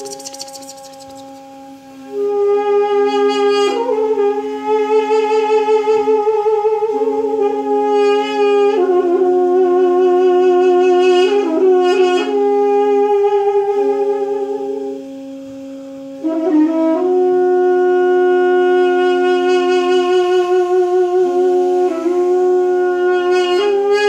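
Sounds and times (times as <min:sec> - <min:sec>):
double-reed pipe drone: 0:00.0 - 0:10.4
double-reed pipe melody: 0:00.0 - 0:24.0.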